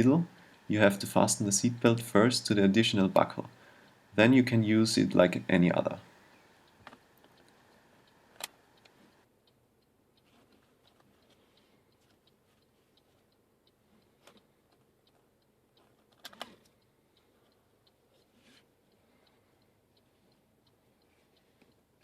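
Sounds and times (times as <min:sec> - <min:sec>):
faint ticking: 0:00.0 - 0:22.0
sharp clicks: 0:06.6 - 0:09.0, 0:13.0 - 0:16.8.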